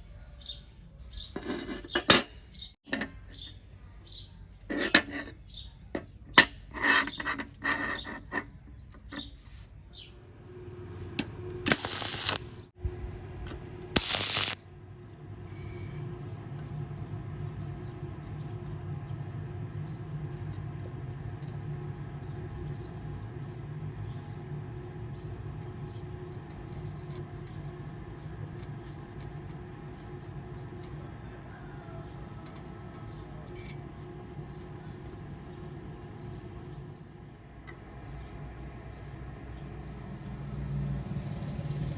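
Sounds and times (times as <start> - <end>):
welding arc crackling: 11.6 - 12.7, 13.9 - 14.8
harsh electrode strike bursts: 11.7 - 12.7, 14.0 - 14.7.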